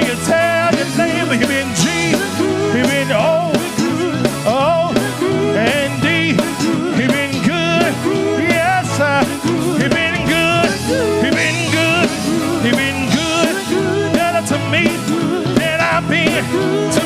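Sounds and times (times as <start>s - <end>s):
gospel band music: 0.0s - 17.0s
person singing: 0.0s - 17.0s
drum beat: 5.5s - 17.0s.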